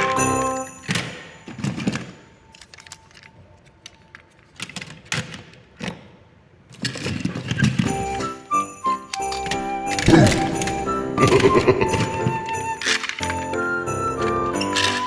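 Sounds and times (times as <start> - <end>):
plastic toys clicking and knocking: 0.8 - 8.0, 14.6 - 15.0.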